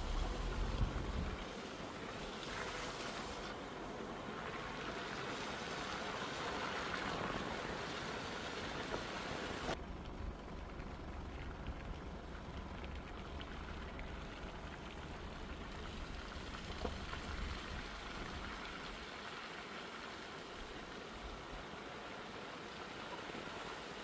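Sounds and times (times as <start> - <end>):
vehicle rumble: 0.0 - 19.0
rain hissing: 0.0 - 24.0.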